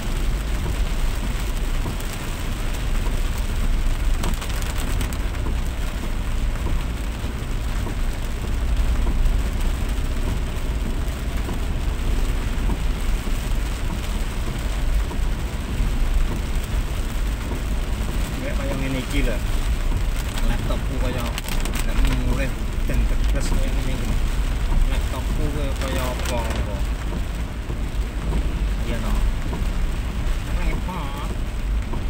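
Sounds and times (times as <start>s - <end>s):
heavy rain: 0.0s - 32.0s
low rumble: 19.4s - 32.0s.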